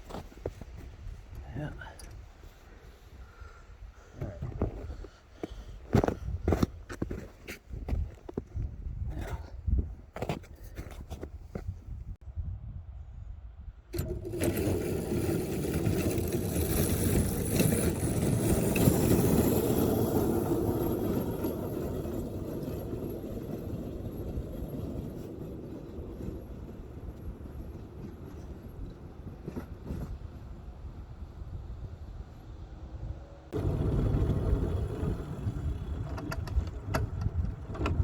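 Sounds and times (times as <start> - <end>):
locomotive engine running: 14.0 - 29.9, 33.6 - 38.0.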